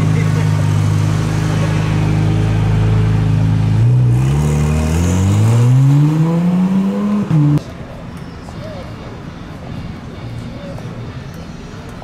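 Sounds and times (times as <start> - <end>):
car engine accelerating: 0.0 - 7.6.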